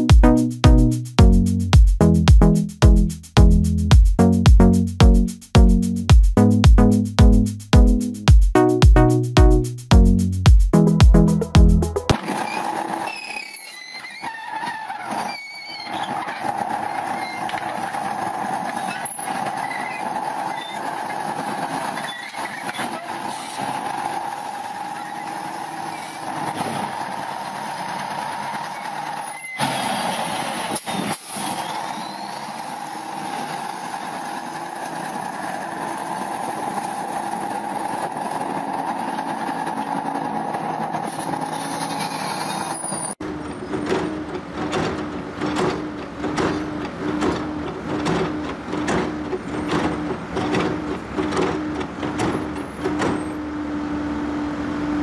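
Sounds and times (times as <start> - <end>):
vehicle engine and road noise: 0.0 - 55.0
short high squeals: 12.2 - 17.8, 21.9 - 23.6, 28.5 - 32.9, 41.1 - 43.2.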